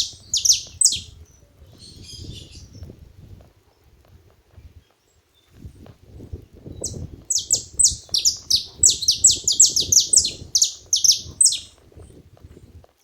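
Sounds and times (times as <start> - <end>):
finch calling: 0.0 - 1.1, 6.8 - 11.7
low rustling patter: 0.0 - 13.0.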